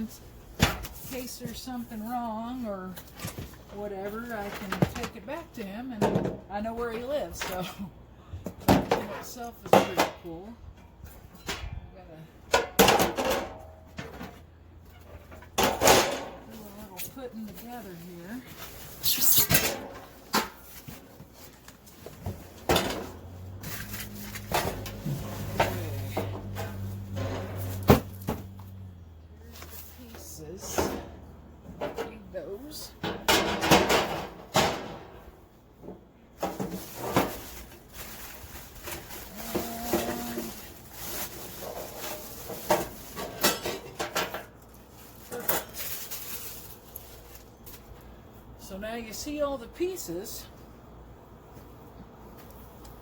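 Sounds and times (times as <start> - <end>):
grill parts knocking and clattering: 12.5 - 17.0, 33.0 - 37.6.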